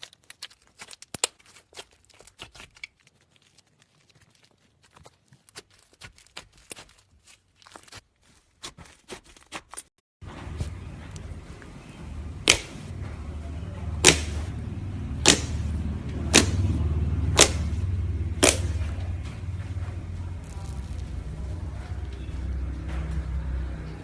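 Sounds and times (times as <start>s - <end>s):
slime crackles: 0.0s - 9.9s, 15.2s - 22.3s
low steady hum: 10.2s - 24.0s
slime snapping pops: 18.4s - 18.7s.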